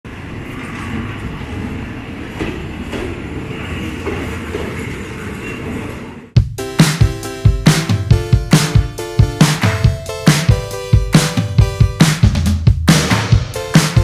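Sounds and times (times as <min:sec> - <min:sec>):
train wheels rumbling on rail: 0:00.1 - 0:06.3.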